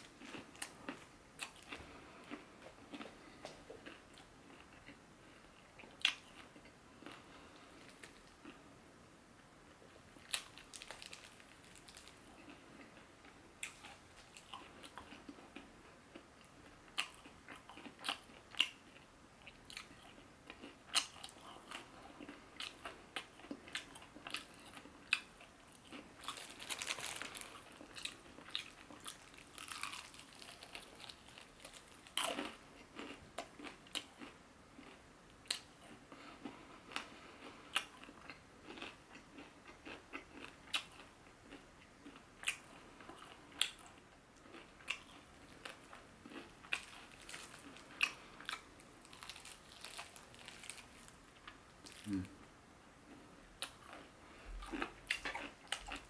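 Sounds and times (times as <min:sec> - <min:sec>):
person chewing: 0:00.0 - 0:08.6, 0:09.7 - 0:52.4, 0:53.0 - 0:56.0
crunching fried chicken: 0:10.2 - 0:52.3, 0:53.1 - 0:56.0.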